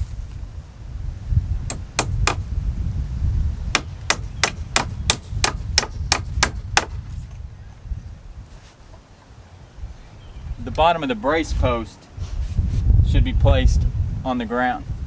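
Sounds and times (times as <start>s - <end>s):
hammer striking nails into wood: 1.7s - 2.4s, 3.7s - 7.0s.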